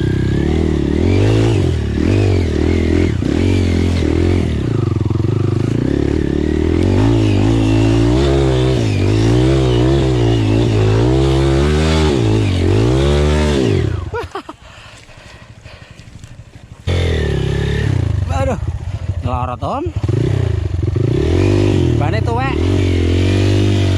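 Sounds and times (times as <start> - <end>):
motorcycle engine revving: 0.0 - 14.3, 15.4 - 23.9.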